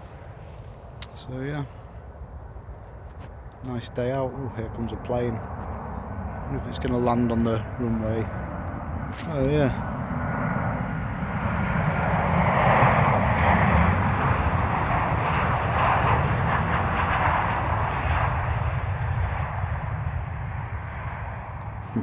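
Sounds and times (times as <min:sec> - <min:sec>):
airliner engine rushing overhead: 0:00.0 - 0:22.0.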